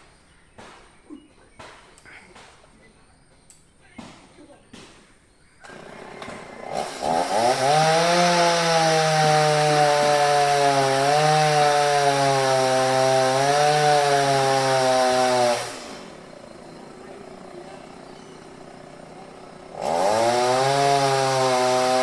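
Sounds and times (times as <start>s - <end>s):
chainsaw revving: 5.6s - 22.0s.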